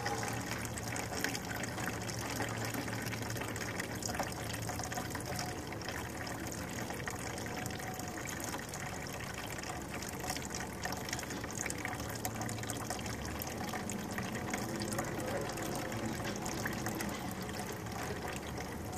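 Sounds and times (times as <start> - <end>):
liquid pouring into a container: 0.0 - 18.9.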